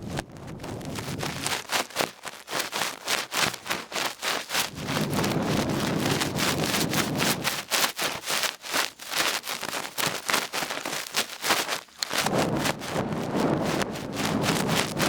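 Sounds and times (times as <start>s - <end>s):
ear swab scratching in ear: 0.0s - 15.0s.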